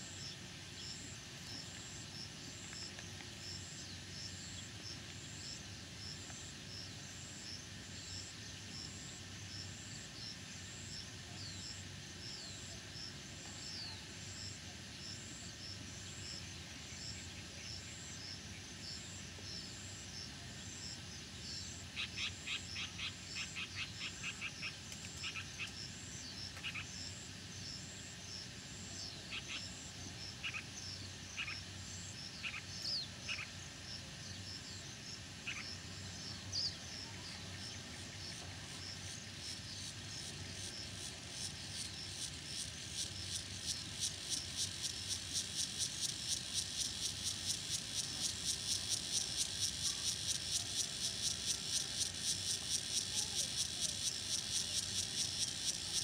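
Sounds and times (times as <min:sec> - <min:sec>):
high chirping insects: 0:00.0 - 0:56.0
pulsing cicada-like buzz: 0:00.0 - 0:56.0
clicking frog calls: 0:22.0 - 0:27.2, 0:29.3 - 0:29.8, 0:30.4 - 0:30.7, 0:31.3 - 0:33.6, 0:35.4 - 0:35.8, 0:39.9 - 0:56.0.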